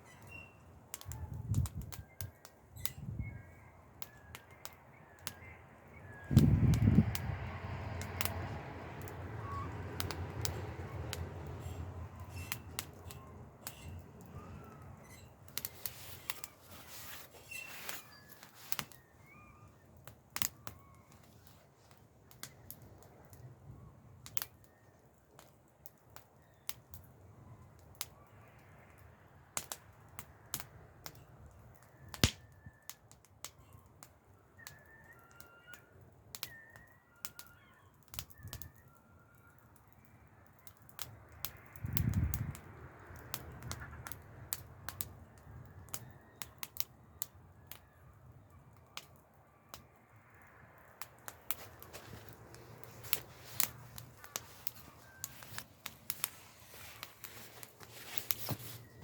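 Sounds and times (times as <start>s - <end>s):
faint bird chirps: 0.0s - 7.0s, 13.1s - 21.9s, 33.6s - 40.4s
campfire crackling: 0.0s - 59.0s.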